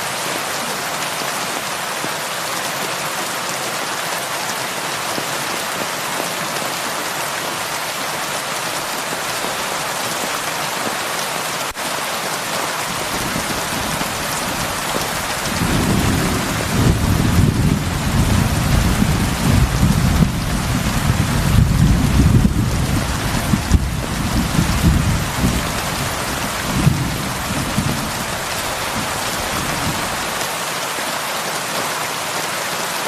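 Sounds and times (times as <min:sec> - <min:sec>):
heavy rain on a roof: 0:00.0 - 0:33.0
rolling thunder: 0:13.1 - 0:30.2.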